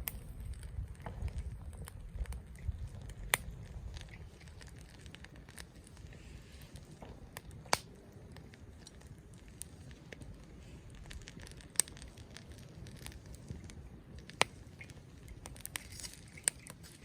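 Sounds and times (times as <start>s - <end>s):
campfire crackling: 0.0s - 17.0s
sharp fire pops: 0.0s - 17.0s.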